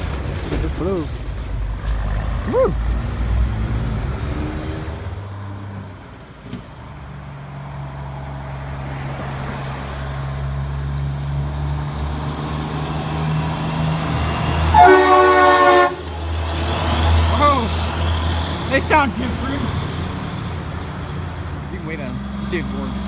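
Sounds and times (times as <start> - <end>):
truck diesel engine droning: 0.0 - 23.0
air horn blast: 14.7 - 16.4.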